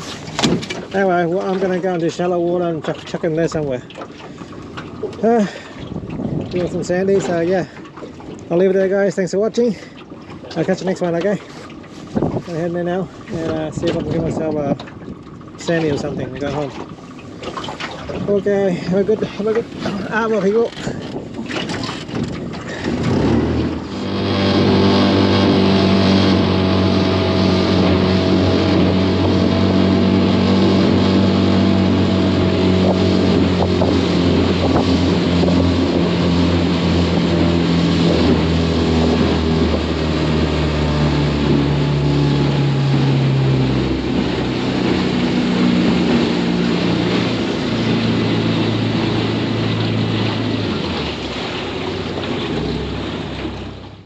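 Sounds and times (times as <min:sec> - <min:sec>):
outboard motor running: 0:00.0 - 0:54.0.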